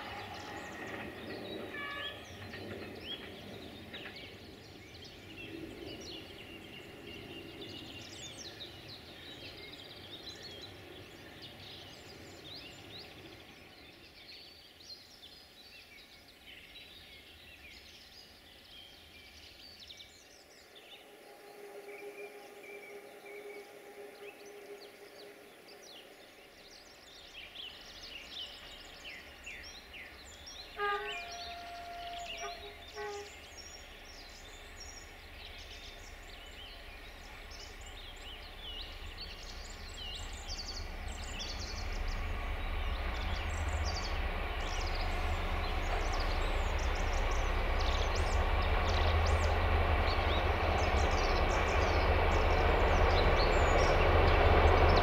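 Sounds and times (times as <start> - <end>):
distant train horn: 0.0 - 7.7, 20.6 - 26.7, 28.0 - 55.0
birds chirping: 0.0 - 14.5, 20.4 - 55.0
diesel train rumbling: 0.0 - 55.0.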